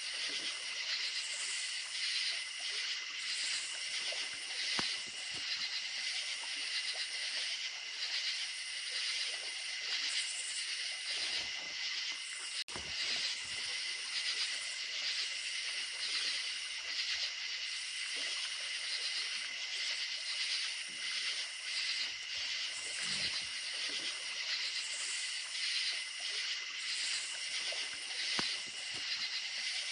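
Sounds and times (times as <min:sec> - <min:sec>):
creek water running faintly: 0:00.0 - 0:29.9
crickets chirping: 0:00.0 - 0:29.9.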